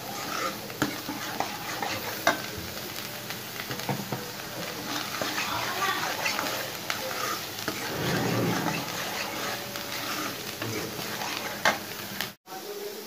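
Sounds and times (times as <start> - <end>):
masala sizzling in a pan: 0.0 - 13.0
metal spoon scraping pan: 0.1 - 2.0, 4.8 - 11.8.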